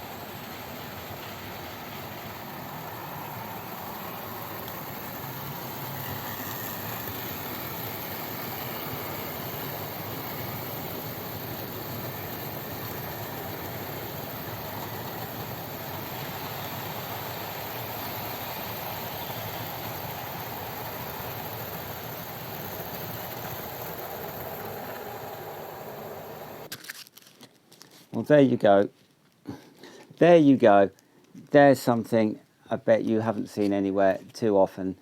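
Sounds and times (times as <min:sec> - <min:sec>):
model train motor whirring: 0:00.7 - 0:26.7.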